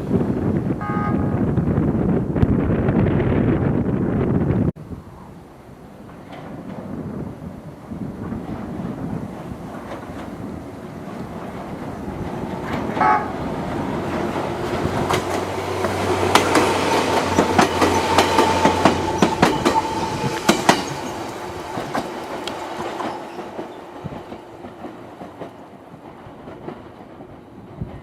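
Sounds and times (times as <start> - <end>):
train wheels clacking over rail joints: 6.0 - 7.4, 8.1 - 28.0.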